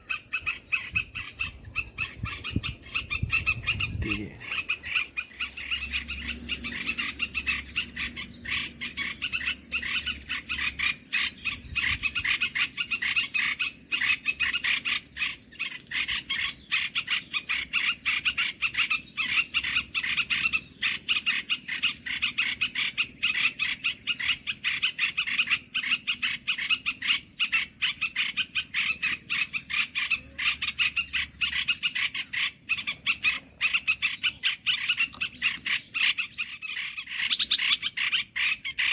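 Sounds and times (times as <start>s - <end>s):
rasping bird chatter: 0.0s - 38.9s.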